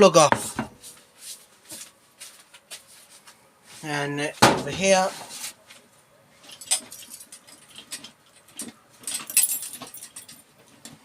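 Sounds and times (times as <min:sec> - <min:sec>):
hand tools rustling and clinking: 0:06.4 - 0:11.0.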